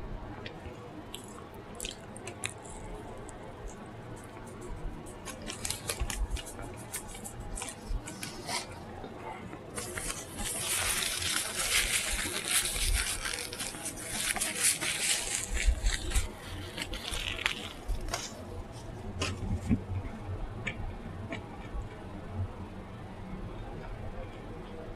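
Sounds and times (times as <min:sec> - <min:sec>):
crisp crackly noise: 0:00.1 - 0:22.5
wet chewing and mouth clicks: 0:00.4 - 0:08.6.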